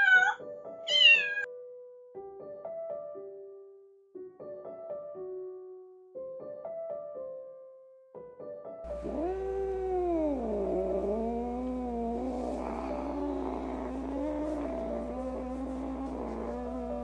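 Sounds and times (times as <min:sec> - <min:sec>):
kitten meowing: 0:00.0 - 0:01.5
piano music: 0:00.0 - 0:17.0.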